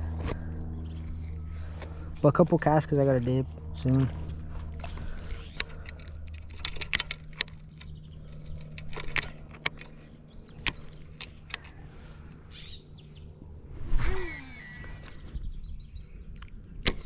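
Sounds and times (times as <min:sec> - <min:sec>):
low steady hum: 0:00.0 - 0:17.0
fishing gear clicks and rattles: 0:03.1 - 0:12.1.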